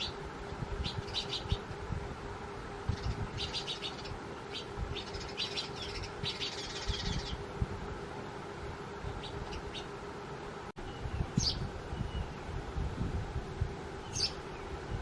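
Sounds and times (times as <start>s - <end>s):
sparrows chirping: 0.0s - 1.8s, 2.7s - 7.6s, 8.9s - 10.1s, 10.8s - 12.6s, 13.9s - 15.0s.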